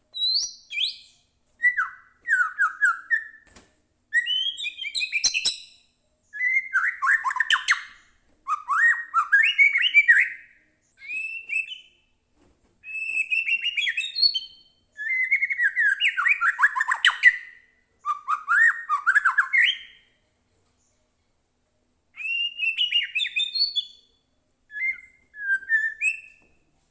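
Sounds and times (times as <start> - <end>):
bird singing varied phrases: 0.2 - 3.4, 4.1 - 12.0, 12.9 - 20.2, 22.2 - 26.4.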